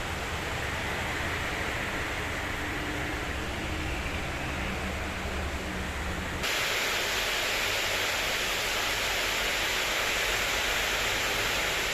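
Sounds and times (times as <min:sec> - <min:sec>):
heavy rain hissing: 0:06.4 - 0:11.9.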